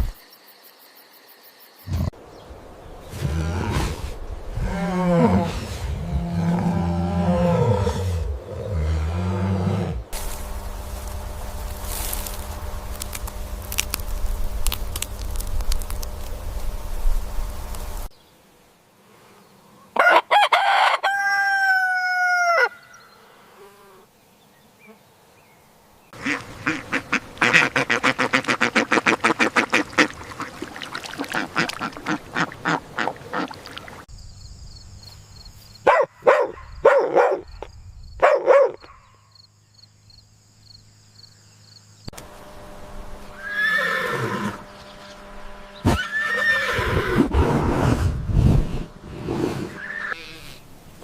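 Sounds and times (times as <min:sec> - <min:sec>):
domestic fowl calling: 0:20.0 - 0:23.0, 0:26.2 - 0:34.0
horse whinnying: 0:43.4 - 0:44.6, 0:45.8 - 0:47.3.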